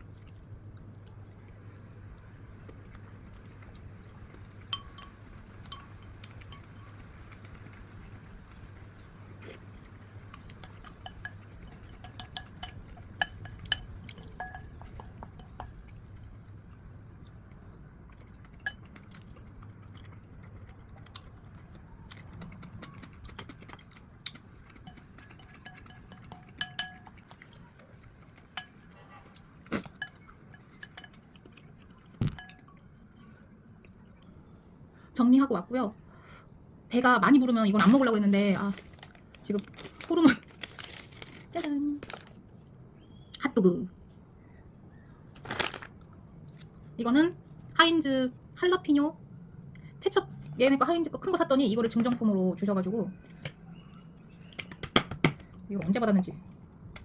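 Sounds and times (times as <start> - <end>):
utensils clinking on dishes: 10.6 - 15.9, 24.8 - 27.6.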